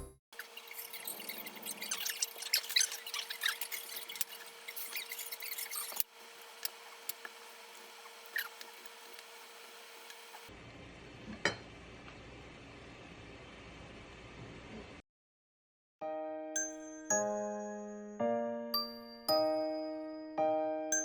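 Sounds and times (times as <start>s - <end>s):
small clicks and squeaks of handling: 0.4s - 7.4s, 8.0s - 9.3s.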